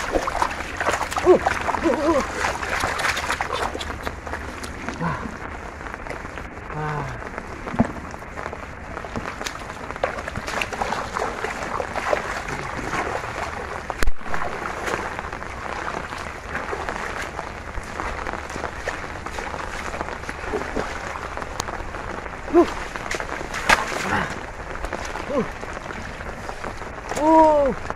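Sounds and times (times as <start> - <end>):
water splashing and pattering: 0.0 - 27.9.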